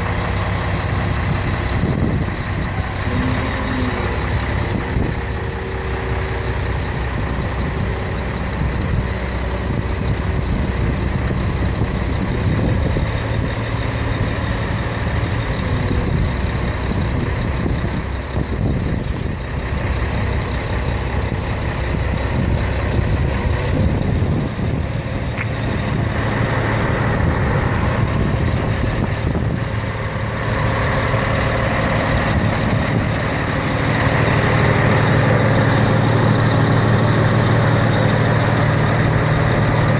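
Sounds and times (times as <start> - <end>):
diesel truck engine running: 0.0 - 39.9
faint high whine: 15.5 - 23.0.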